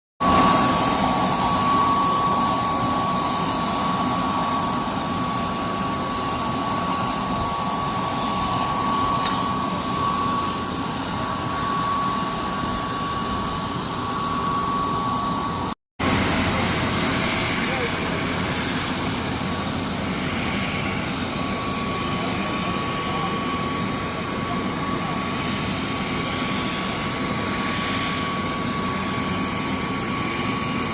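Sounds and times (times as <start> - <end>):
rushing hiss: 0.2 - 14.4
high steady tone: 0.2 - 30.9
jet turbine whine: 0.2 - 30.9.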